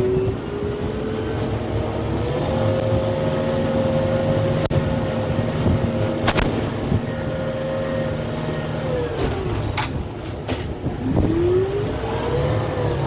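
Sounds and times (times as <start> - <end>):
tractor diesel engine running: 0.0 - 13.0
sharp cracks: 6.2 - 6.6.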